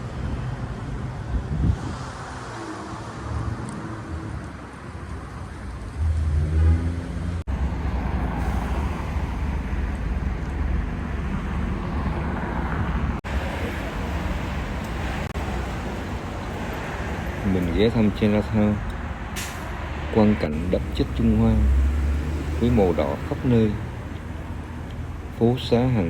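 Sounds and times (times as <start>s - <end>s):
cars passing on street: 0.0s - 26.0s
low traffic rumble: 0.0s - 26.0s.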